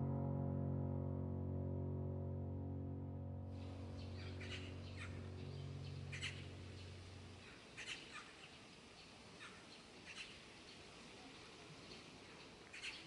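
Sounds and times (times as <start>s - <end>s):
low steady hum: 0.0s - 7.8s
faint bird calls: 3.6s - 13.0s.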